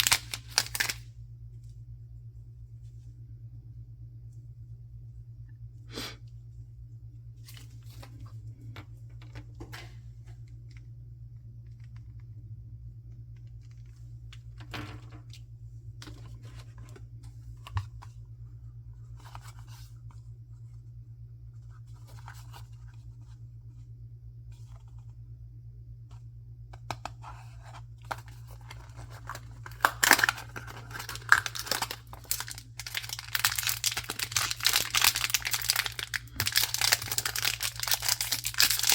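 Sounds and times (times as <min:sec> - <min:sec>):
packaging tearing and crinkling: 0:00.0 - 0:01.0, 0:28.1 - 0:38.9
steady low hum: 0:00.0 - 0:38.9.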